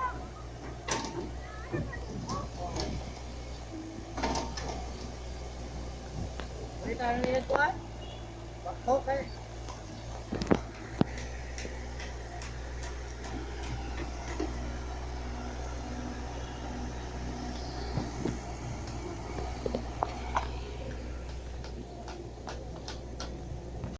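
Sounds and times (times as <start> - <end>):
diesel engine humming: 0.0 - 23.9
knocks and clanks: 0.6 - 3.1, 4.1 - 5.1.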